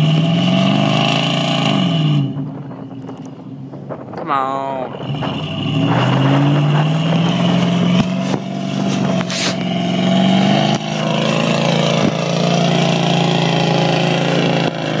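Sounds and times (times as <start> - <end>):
truck engine revving hard: 0.0 - 2.6, 4.9 - 15.0.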